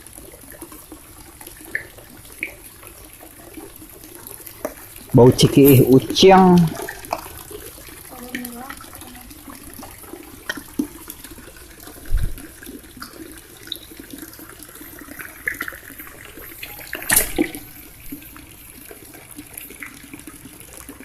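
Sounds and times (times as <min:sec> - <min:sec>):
water splashing and trickling: 0:00.0 - 0:21.0.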